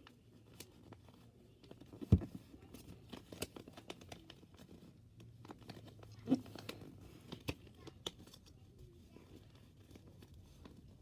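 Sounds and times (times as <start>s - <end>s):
paper crinkling: 0.0s - 11.0s.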